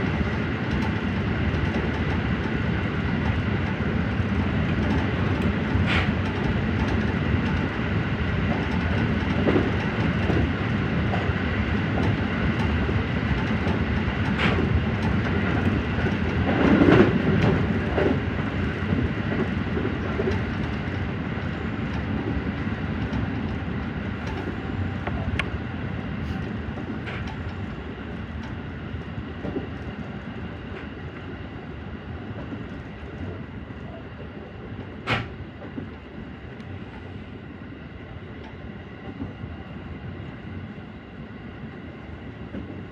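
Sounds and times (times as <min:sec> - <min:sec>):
electric train rumbling on rails: 0:00.0 - 0:42.9
wheels clicking over rail joints: 0:23.0 - 0:25.6.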